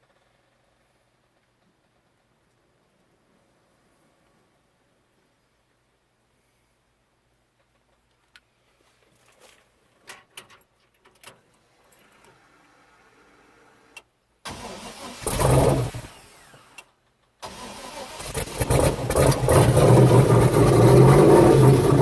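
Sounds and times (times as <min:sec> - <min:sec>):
engine cranking and starting: 0:14.5 - 0:22.0.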